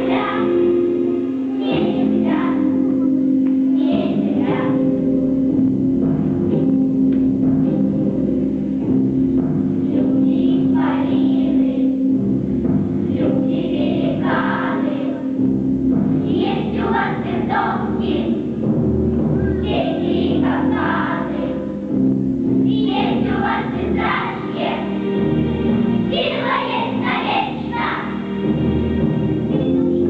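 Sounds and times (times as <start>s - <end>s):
children's choir singing: 0.0s - 5.6s, 9.8s - 12.2s, 13.0s - 15.5s, 16.1s - 18.7s, 19.4s - 22.0s, 22.6s - 30.0s
instrumental accompaniment: 0.0s - 30.0s.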